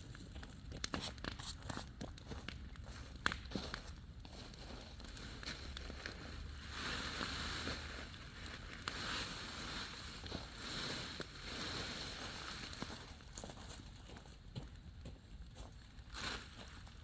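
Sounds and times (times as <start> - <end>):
fire crackles: 0.0 - 17.0
bonfire rushing hiss: 5.1 - 13.3.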